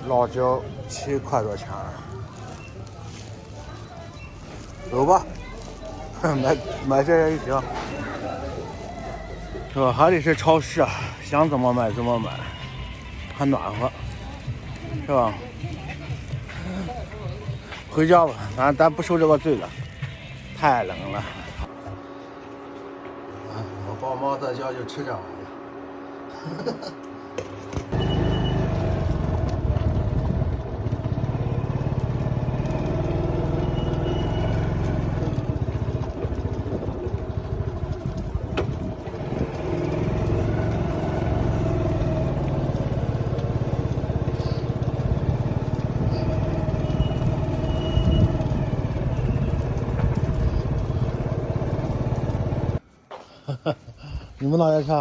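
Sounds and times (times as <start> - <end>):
motorcycle engine running: 27.4 - 52.8
wind rumble on microphone: 36.3 - 39.6.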